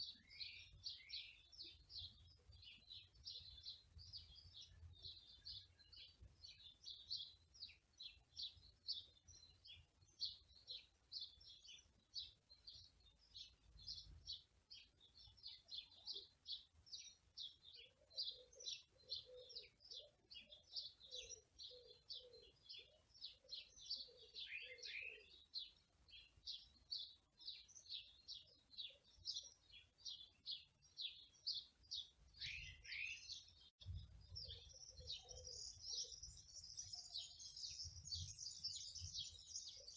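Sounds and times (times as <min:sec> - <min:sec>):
small songbirds chirping: 0:00.0 - 0:39.9
lower repeated bird call: 0:18.2 - 0:25.4.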